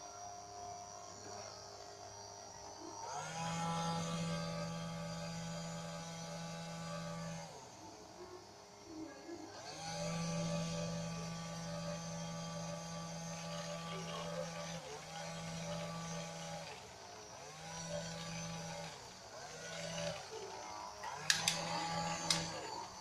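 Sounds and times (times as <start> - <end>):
electric motor humming: 2.0 - 23.0
sharp clicks: 21.0 - 22.6.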